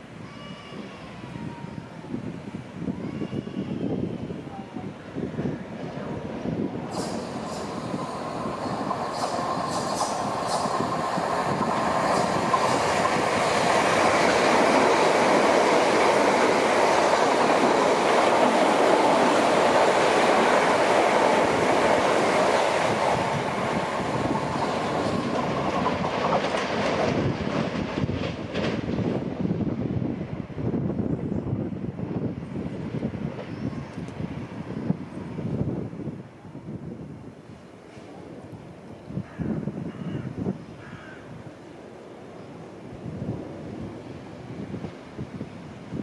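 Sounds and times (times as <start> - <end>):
electric train running: 6.1 - 28.2.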